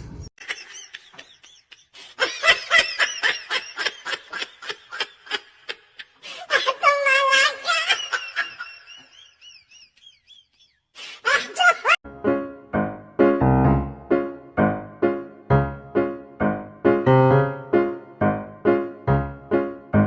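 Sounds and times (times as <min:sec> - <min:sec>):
person laughing: 0:00.4 - 0:12.0.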